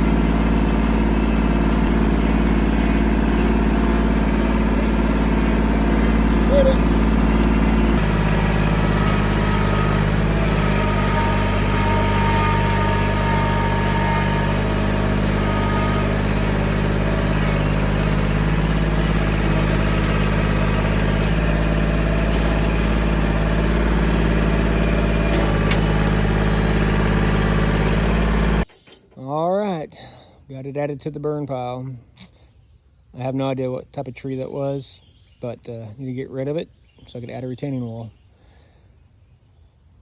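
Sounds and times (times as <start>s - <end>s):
tractor engine running: 0.0s - 29.4s.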